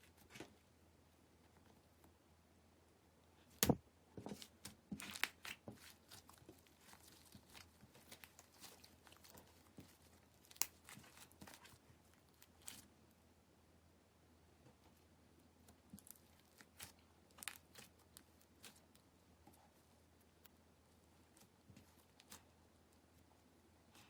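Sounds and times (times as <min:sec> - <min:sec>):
slime popping and crackling: 0:05.0 - 0:11.7, 0:15.9 - 0:19.0.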